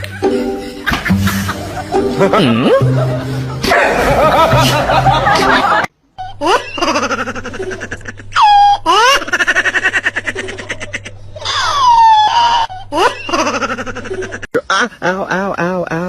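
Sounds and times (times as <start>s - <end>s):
hearty laughter: 0.0s - 11.7s.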